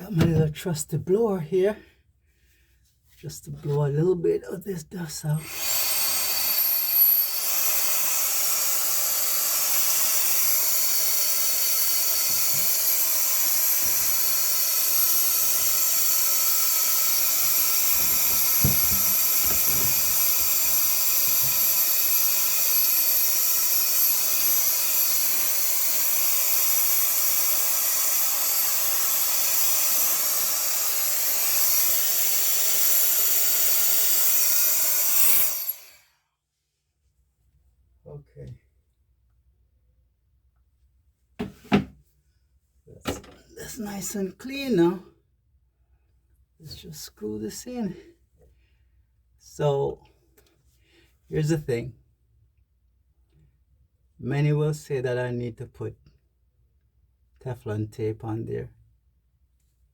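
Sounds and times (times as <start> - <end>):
handheld blower hissing: 5.4 - 36.1.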